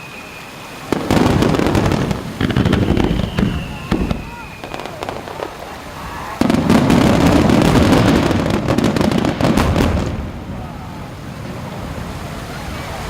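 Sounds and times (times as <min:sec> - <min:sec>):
fireworks crackling: 0:00.0 - 0:13.0
firework bang: 0:00.9 - 0:05.7, 0:06.4 - 0:10.6.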